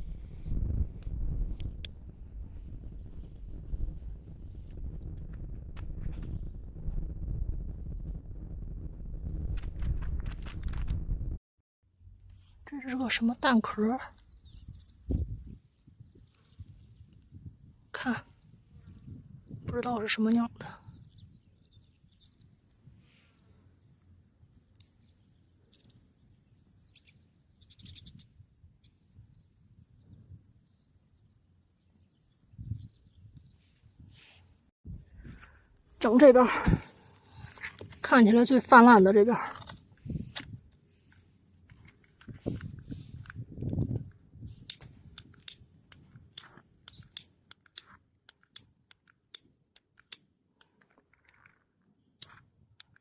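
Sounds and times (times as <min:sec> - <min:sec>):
faint bird chirps: 0:26.2 - 0:34.6.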